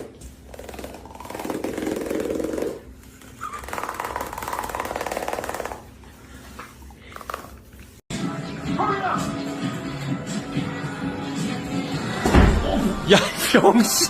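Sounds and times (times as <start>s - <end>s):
dog purring: 0.5s - 7.9s.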